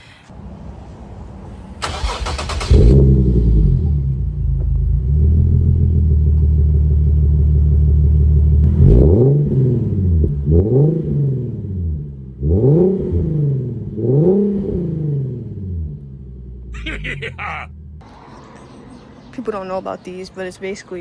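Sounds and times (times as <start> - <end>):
car engine idling and revving: 1.5 - 18.2.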